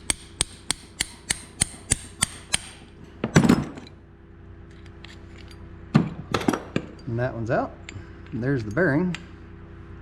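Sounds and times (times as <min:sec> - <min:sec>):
hammer tapping metal punch: 0:00.0 - 0:02.8.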